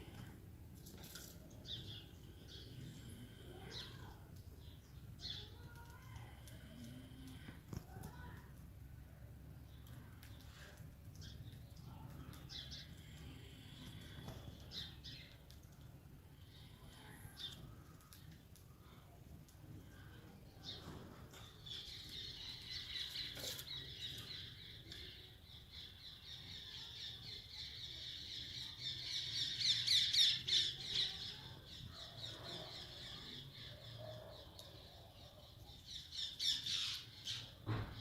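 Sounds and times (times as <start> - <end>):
birds chattering and calling: 19.8 - 38.0.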